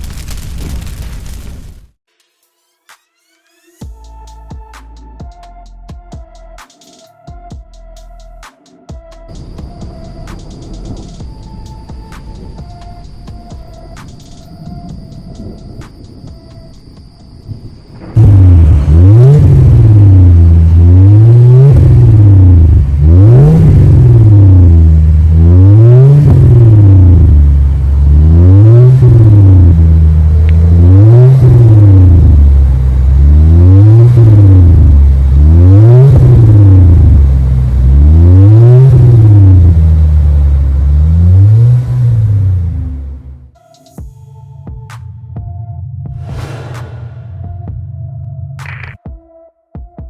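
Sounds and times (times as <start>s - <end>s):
car engine revving: 7.8s - 43.6s.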